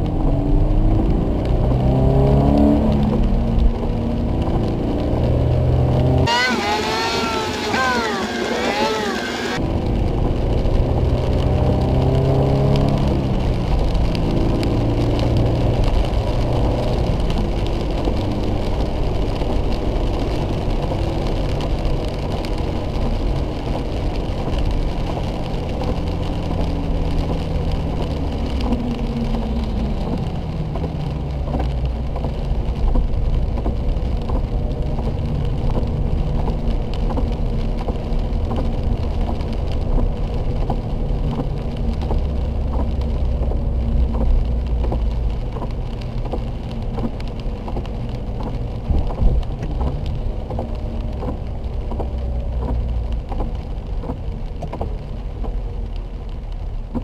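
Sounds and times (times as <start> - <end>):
car engine decelerating: 0.0 - 57.0
tyres hissing on wet track: 6.2 - 9.8.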